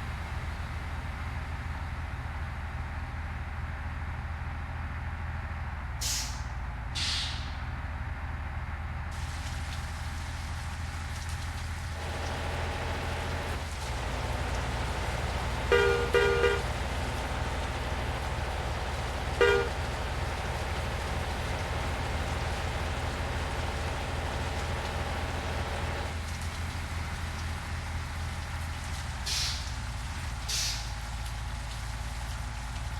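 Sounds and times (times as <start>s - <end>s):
truck engine droning: 0.0s - 32.9s
vehicle horn toots: 15.0s - 18.1s, 18.8s - 20.4s.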